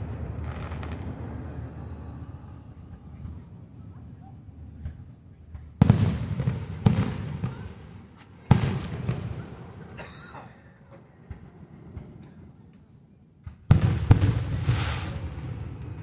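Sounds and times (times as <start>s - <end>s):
firework crackle: 0.0s - 9.8s, 13.7s - 16.0s
firework booms with echo: 0.0s - 10.0s, 13.4s - 16.0s.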